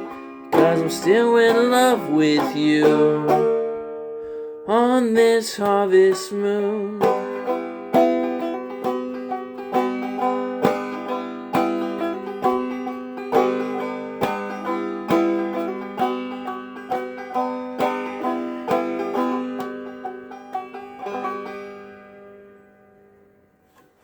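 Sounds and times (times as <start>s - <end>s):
banjo picking and strumming: 0.0s - 24.0s.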